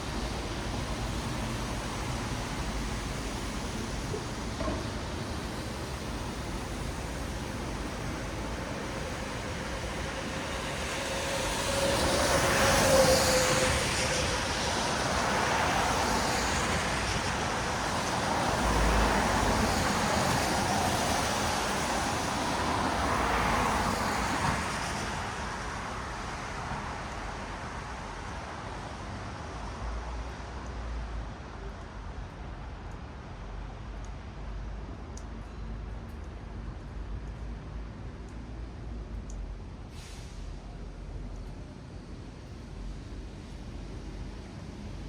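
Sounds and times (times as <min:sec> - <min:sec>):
vehicles passing on wet road: 0:00.0 - 0:45.0.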